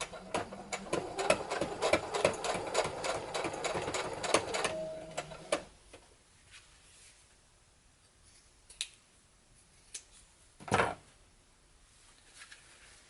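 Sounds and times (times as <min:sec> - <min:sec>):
fabric rustling: 0:11.9 - 0:13.0.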